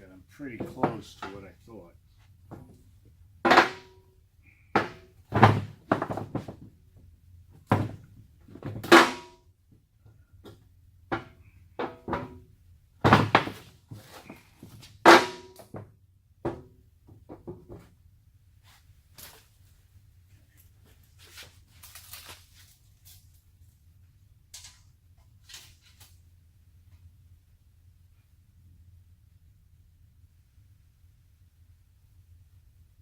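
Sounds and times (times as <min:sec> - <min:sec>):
steel panels knocking and clanking: 0:03.5 - 0:06.6, 0:07.7 - 0:09.4, 0:11.1 - 0:12.4, 0:13.0 - 0:17.9.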